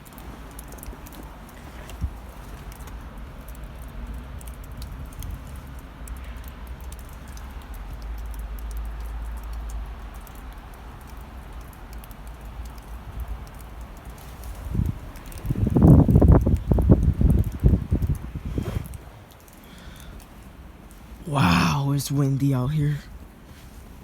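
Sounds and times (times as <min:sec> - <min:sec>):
small sharp ticks: 0:00.0 - 0:21.2
wind buffeting microphone: 0:14.4 - 0:19.3.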